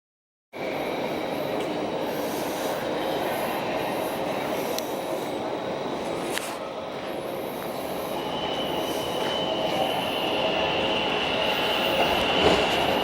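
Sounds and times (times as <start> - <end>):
train rumbling: 0.6 - 13.0.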